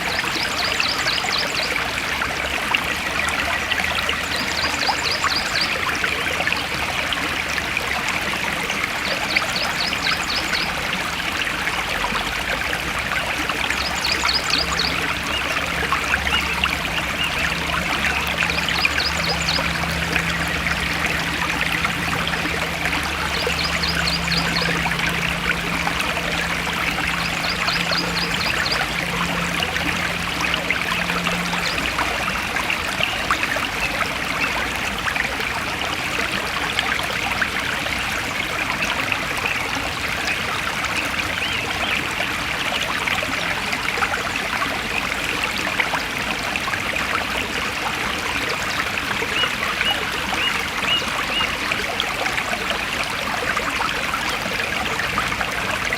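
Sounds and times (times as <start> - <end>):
stream flowing and trickling: 0.0 - 55.9
low steady hum: 13.0 - 33.0.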